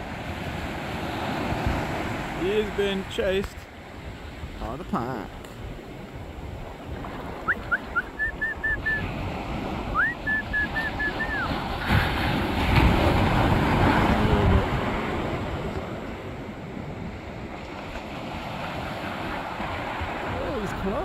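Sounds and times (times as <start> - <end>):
surf washing: 0.0 - 21.0
wind buffeting microphone: 0.0 - 21.0
bird piping calls: 7.4 - 9.1, 10.0 - 11.6.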